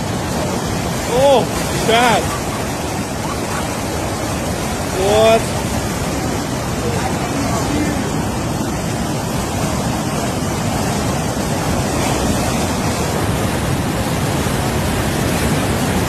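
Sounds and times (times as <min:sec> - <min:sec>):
water rushing through a channel: 0:00.0 - 0:16.0.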